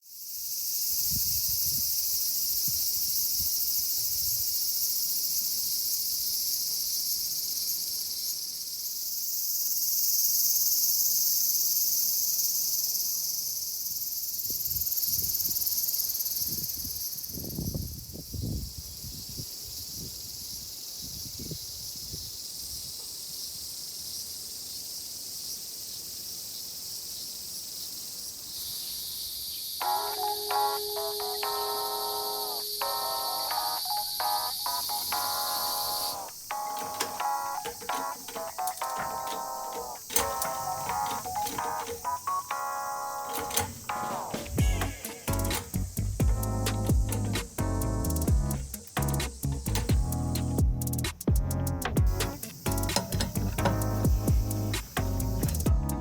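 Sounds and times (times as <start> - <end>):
insects chorus: 0.0 - 56.0
low thuds and rumbles: 45.7 - 48.6, 53.2 - 56.0.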